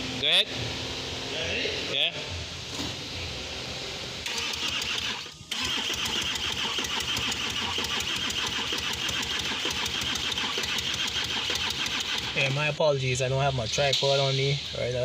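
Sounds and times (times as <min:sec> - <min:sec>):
diesel engine cranking: 0:03.3 - 0:14.0
starter motor whine: 0:04.2 - 0:12.7.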